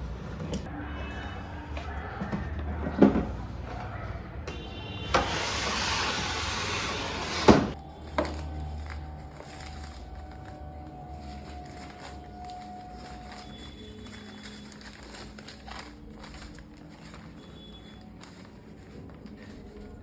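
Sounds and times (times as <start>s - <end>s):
packaging rustling: 7.7s - 20.0s
soft background music: 7.7s - 20.0s.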